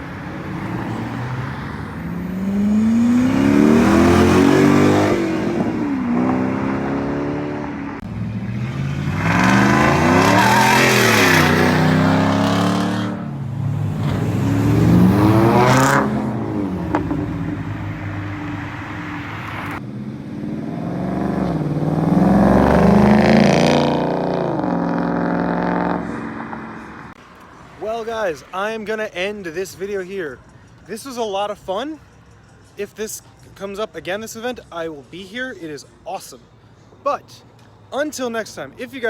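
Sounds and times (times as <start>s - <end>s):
car engines revving: 0.0s - 27.9s.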